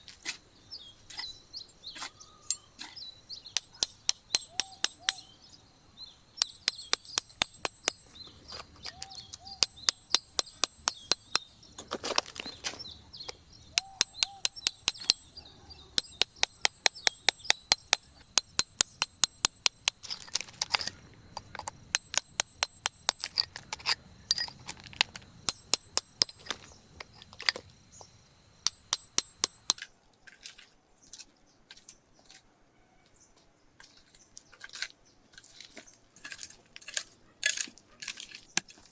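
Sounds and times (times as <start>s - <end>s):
sharp clinking taps: 3.6s - 5.5s, 6.4s - 29.8s.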